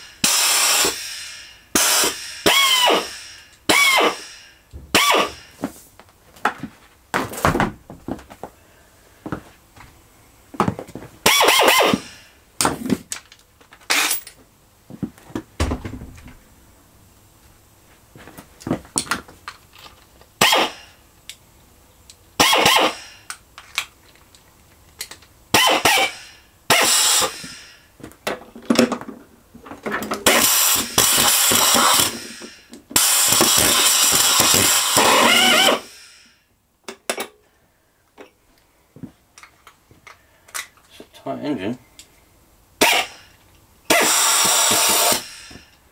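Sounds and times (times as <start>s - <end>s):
air drill bursts: 0.0s - 5.6s, 11.2s - 12.4s, 20.4s - 21.0s, 22.4s - 23.3s, 25.5s - 27.9s, 30.2s - 36.5s, 42.8s - 45.8s.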